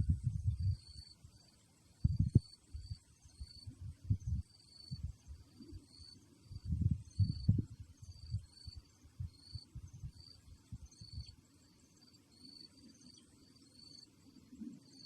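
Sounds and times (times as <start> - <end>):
wind buffeting microphone: 0.0 - 1.0, 2.0 - 5.8, 6.4 - 11.3
insect chirping: 0.0 - 15.0.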